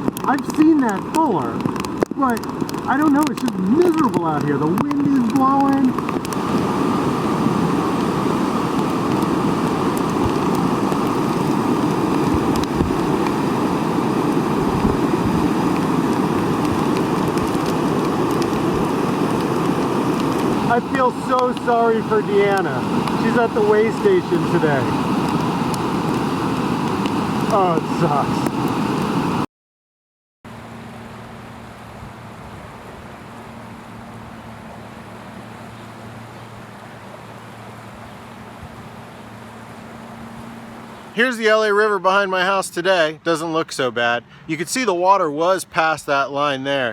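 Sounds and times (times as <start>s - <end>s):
river rushing through channel: 0.0s - 29.4s, 30.5s - 46.9s
heavy rain pouring: 0.0s - 29.5s
wind gusting on microphone: 0.0s - 29.5s, 37.6s - 41.2s.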